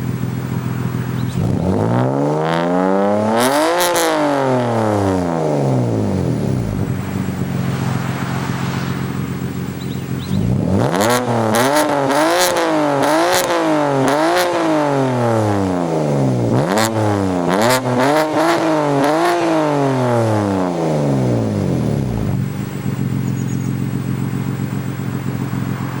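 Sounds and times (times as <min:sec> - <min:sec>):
car engine revving: 0:00.0 - 0:26.0
exhaust crackles: 0:00.0 - 0:26.0.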